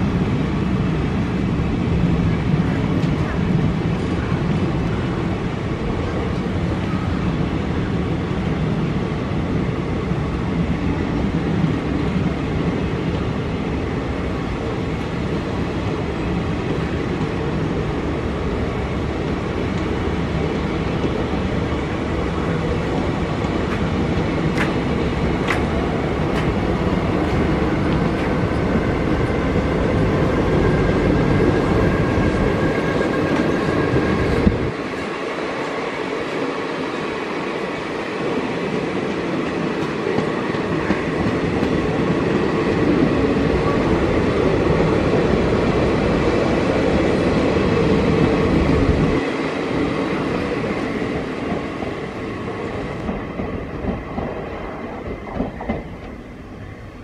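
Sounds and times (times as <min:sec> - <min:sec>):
train coaches rumbling on rails: 0:00.0 - 0:57.0
train wheels clicking: 0:22.8 - 0:31.1, 0:38.6 - 0:43.1, 0:50.2 - 0:56.2.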